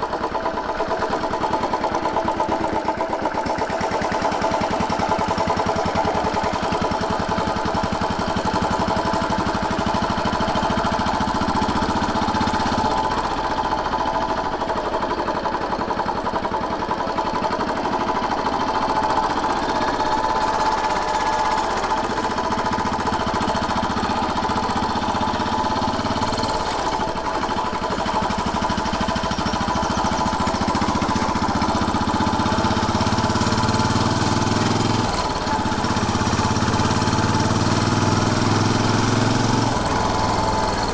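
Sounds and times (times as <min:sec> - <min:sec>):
motorcycle engine thumping: 0:16.1 - 0:40.9.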